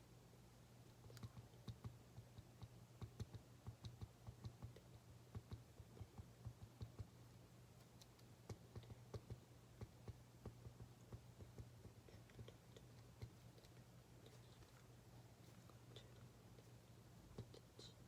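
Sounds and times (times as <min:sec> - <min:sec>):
low steady hum: 0:00.0 - 0:18.0
small clicks and taps: 0:01.0 - 0:07.2, 0:07.8 - 0:14.8.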